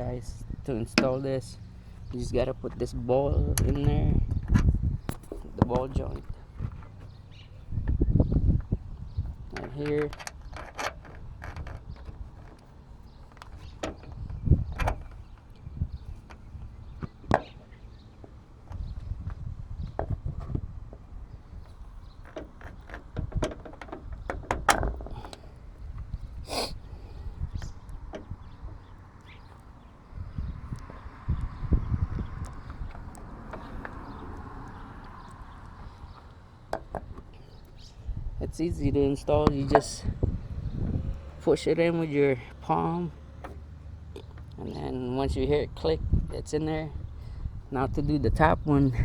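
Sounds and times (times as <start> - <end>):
low rumbling: 0.0 - 49.0
metal parts knocking and clicking: 9.5 - 15.2, 22.2 - 25.4.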